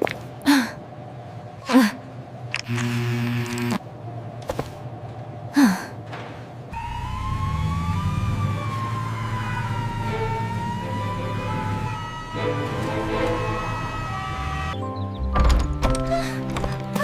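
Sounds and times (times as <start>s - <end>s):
emergency vehicle siren wailing: 6.7s - 14.8s.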